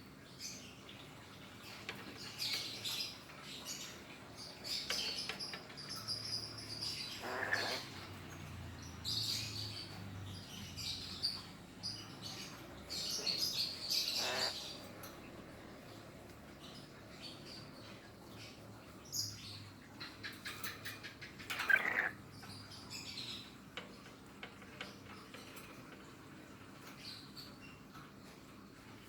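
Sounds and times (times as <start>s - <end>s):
parrot chirping: 6.2s - 7.9s, 13.4s - 14.8s, 21.5s - 22.2s.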